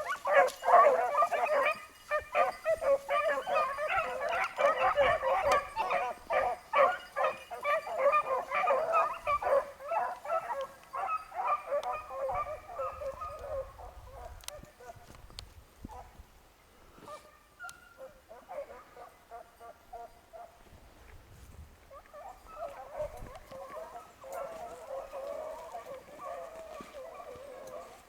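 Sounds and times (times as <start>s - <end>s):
beagles baying: 0.0s - 15.0s, 17.1s - 20.6s, 21.9s - 28.0s.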